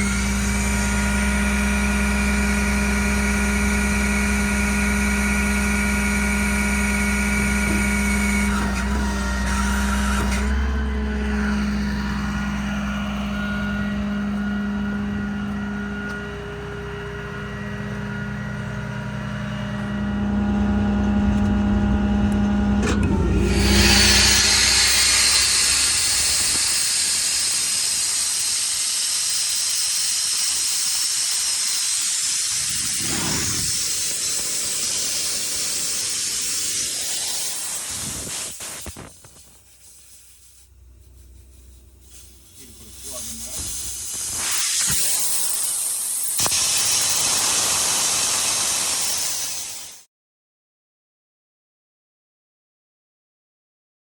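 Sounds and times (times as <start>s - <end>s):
diesel engine hum with whine: 0.0s - 50.0s
brief hiss: 23.5s - 50.1s.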